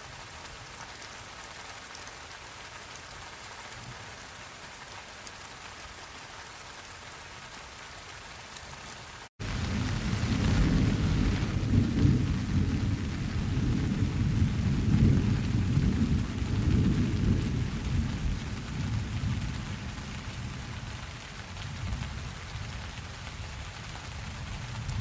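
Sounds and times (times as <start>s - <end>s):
steady rain: 0.0s - 25.0s
low roll of thunder: 9.4s - 22.4s.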